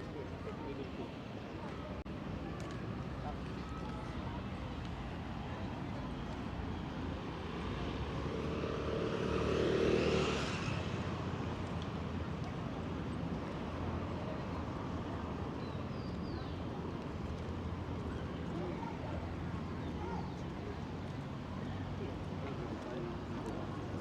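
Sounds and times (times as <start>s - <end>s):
background traffic: 0.0s - 24.0s
motor vehicle passing: 8.0s - 11.6s.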